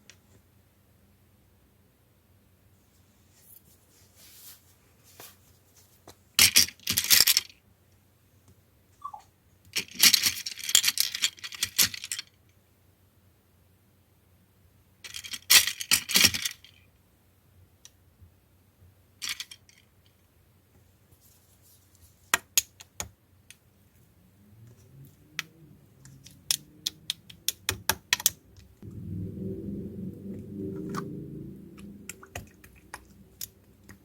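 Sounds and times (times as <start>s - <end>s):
slime squishing: 31.8s - 34.0s.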